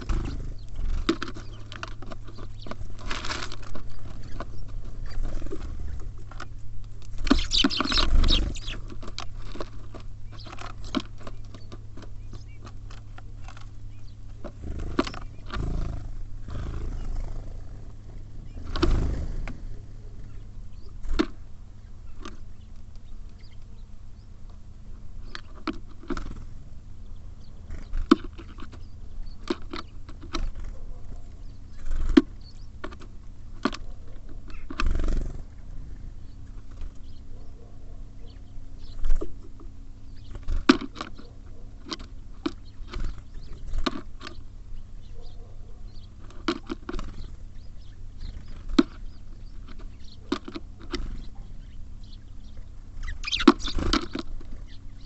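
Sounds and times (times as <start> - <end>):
steady low hum: 0.0 - 55.0
beaks tapping on bird feeder: 6.3 - 15.6, 53.0 - 54.8.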